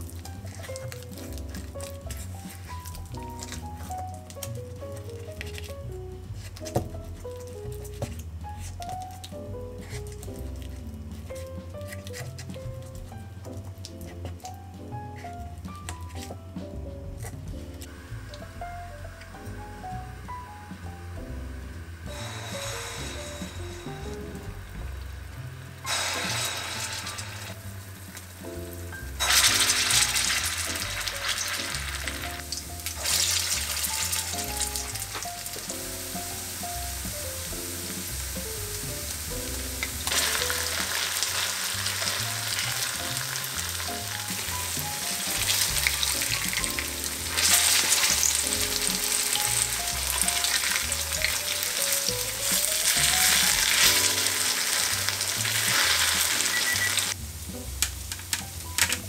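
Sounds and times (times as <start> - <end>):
food sizzling in oil: 0.0 - 5.3, 21.6 - 58.9
soft music with plucked notes: 0.0 - 26.5, 27.1 - 59.0.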